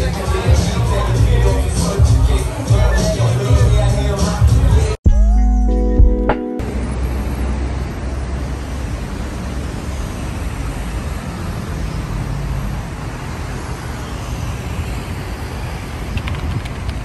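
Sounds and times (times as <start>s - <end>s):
traffic rumble with hiss: 6.6s - 17.0s.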